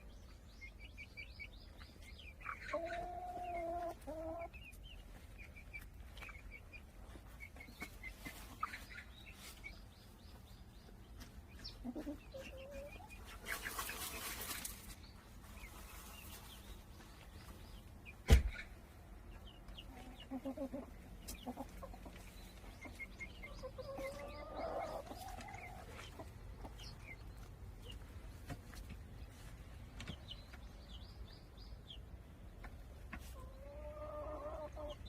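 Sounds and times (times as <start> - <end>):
chickens clucking softly: 0.1 - 35.0
sharp knock: 18.3 - 18.6.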